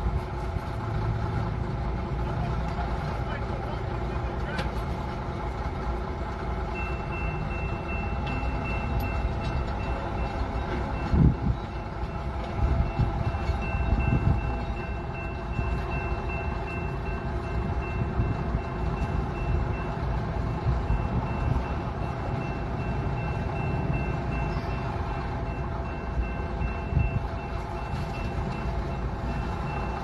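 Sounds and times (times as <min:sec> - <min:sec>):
diesel engine rumble: 0:00.0 - 0:30.0.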